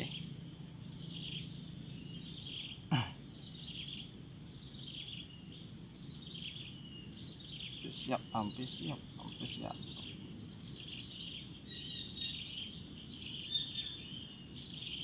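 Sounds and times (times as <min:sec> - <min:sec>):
low steady rumble: 0:00.0 - 0:15.0
bird repeating high call: 0:10.8 - 0:15.0.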